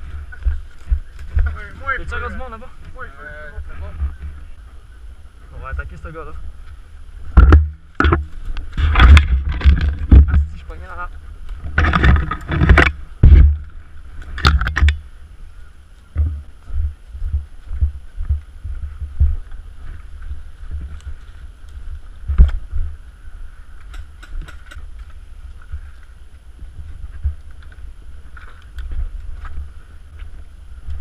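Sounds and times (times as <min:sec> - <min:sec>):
soft thumps like walking steps: 0:16.0 - 0:23.0, 0:23.8 - 0:31.0.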